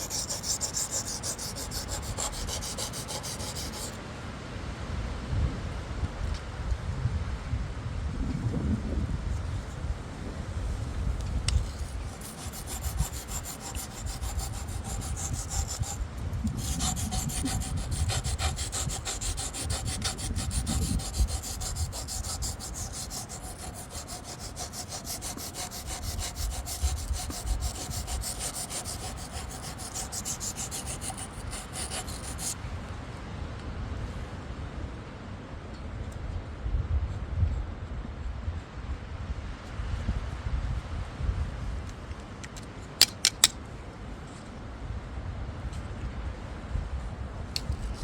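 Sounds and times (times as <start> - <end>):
knife grinding on sharpening stone: 0.0 - 4.0, 11.6 - 32.6.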